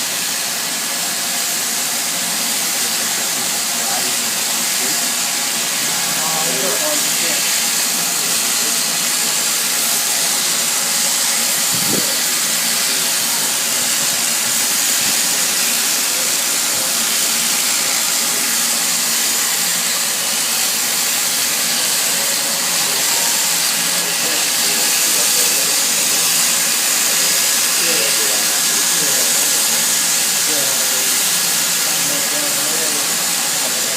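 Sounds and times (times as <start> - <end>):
wind rushing over microphone: 11.7 - 12.1.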